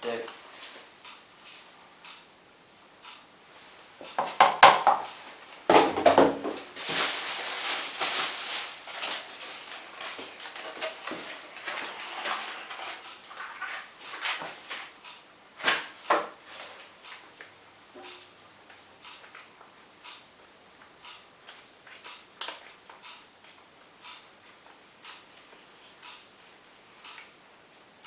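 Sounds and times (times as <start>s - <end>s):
plastic knocks and clatter: 4.1s - 5.1s, 5.7s - 6.6s
rustling: 6.6s - 14.9s.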